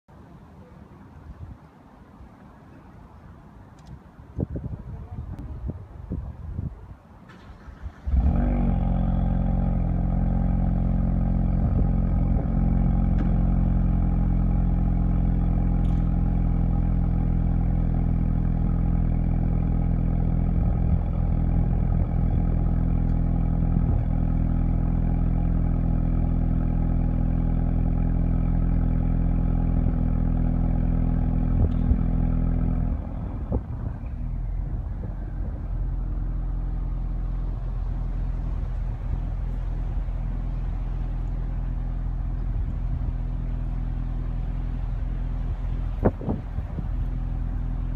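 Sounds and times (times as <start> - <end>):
car engine starting: 7.2 - 47.9
car engine idling: 7.4 - 47.9.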